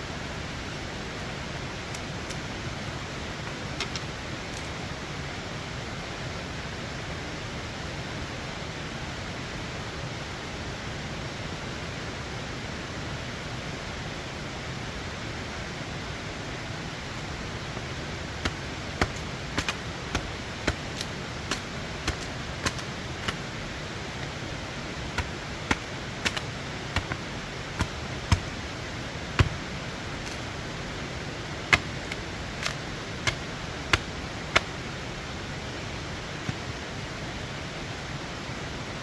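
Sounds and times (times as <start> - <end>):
river water rushing: 11.9 - 39.0.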